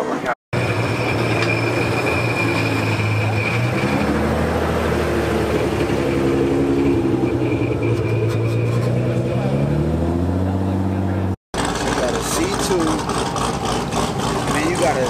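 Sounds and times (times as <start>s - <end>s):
thin high whine: 0.6s - 4.2s
car engine running at low revs: 7.9s - 15.0s.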